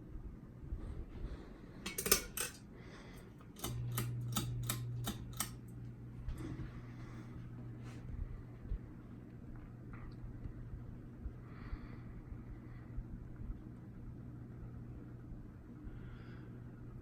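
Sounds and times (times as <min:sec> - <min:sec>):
ceiling fan motor humming: 0:00.0 - 0:17.0
fan switch clicks: 0:01.9 - 0:02.6, 0:03.4 - 0:05.9.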